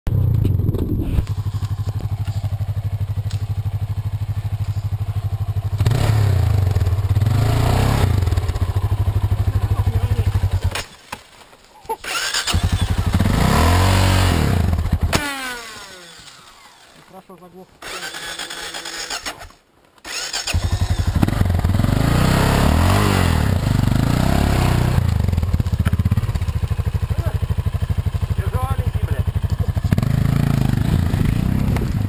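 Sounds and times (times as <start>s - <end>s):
engine revving: 0.1s - 10.9s, 12.0s - 17.0s, 17.8s - 32.0s
off-road vehicle engine idling: 1.2s - 10.8s, 20.6s - 32.0s.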